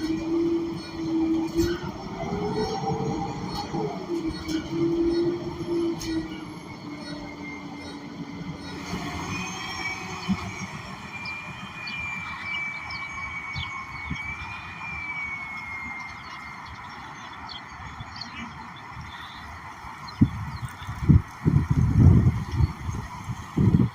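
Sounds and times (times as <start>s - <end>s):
high wavering squeal: 0.0s - 18.6s.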